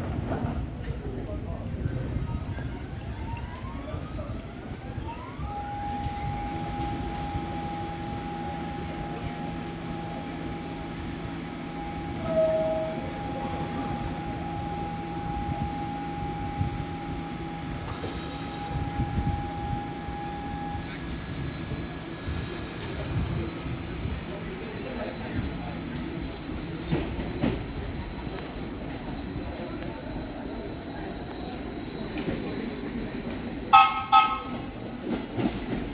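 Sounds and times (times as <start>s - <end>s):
subway train wheel squeal: 0.0s - 35.9s
brief loud tone: 11.8s - 16.9s, 17.8s - 35.9s.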